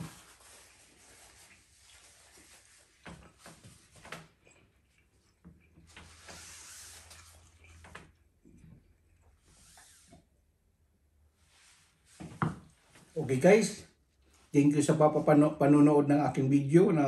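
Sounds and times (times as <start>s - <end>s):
person chewing food: 4.3s - 5.9s.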